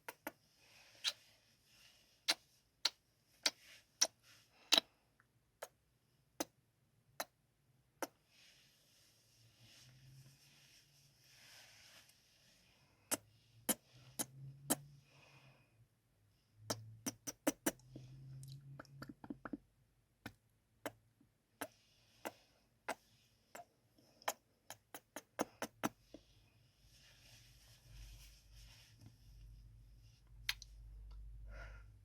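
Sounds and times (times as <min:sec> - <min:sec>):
soft breathing: 0:00.3 - 0:02.7, 0:08.2 - 0:16.6, 0:25.2 - 0:32.0
wet lip smacks: 0:16.7 - 0:19.6.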